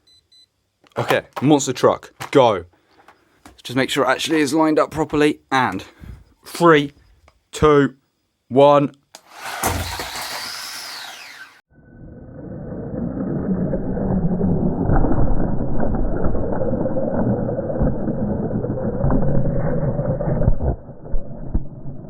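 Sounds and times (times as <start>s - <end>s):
toy truck whoosh: 9.2s - 14.8s.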